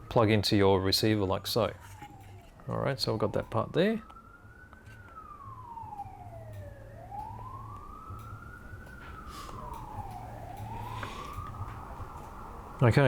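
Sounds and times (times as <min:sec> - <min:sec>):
faint siren wailing: 0:00.0 - 0:13.0.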